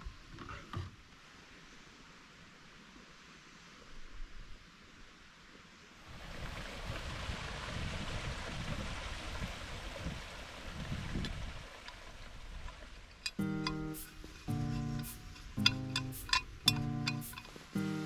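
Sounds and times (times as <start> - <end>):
wind gusting over microphone: 6.1 - 11.7.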